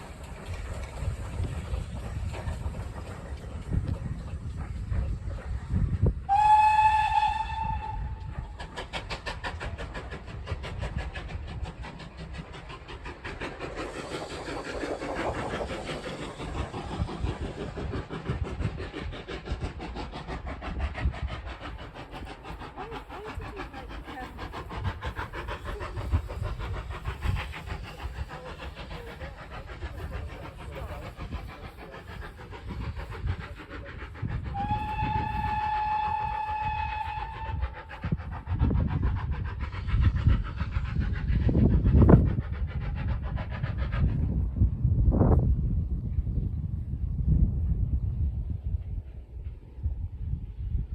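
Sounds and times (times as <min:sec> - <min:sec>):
train running rhythmic beat: 0:00.0 - 0:50.9
train whistle blowing: 0:06.3 - 0:08.3, 0:34.5 - 0:37.6.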